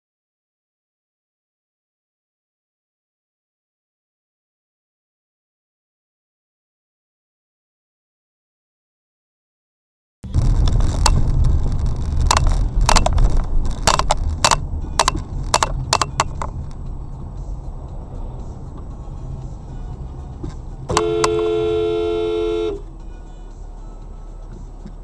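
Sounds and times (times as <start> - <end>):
vehicle road and engine rumble: 10.2 - 25.0
sharp clicks and knocks: 10.4 - 16.9
car horn: 20.9 - 23.0.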